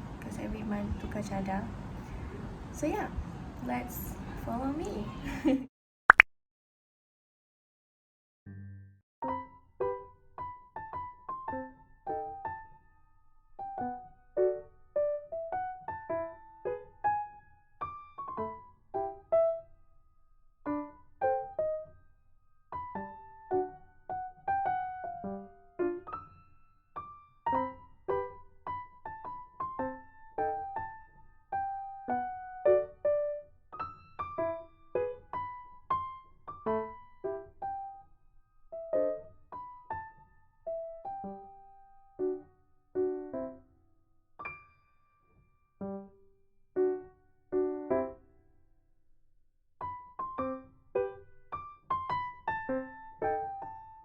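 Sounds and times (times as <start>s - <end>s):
gentle piano melody: 9.2s - 19.9s, 20.6s - 43.7s, 44.4s - 48.4s, 49.8s - 54.0s.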